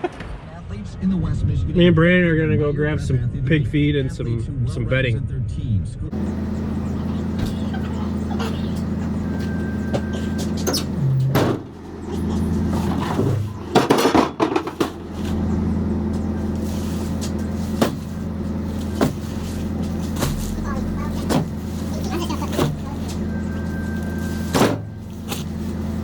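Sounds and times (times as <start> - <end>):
engine humming: 6.0 - 26.0
knocks and rattles: 7.2 - 25.5.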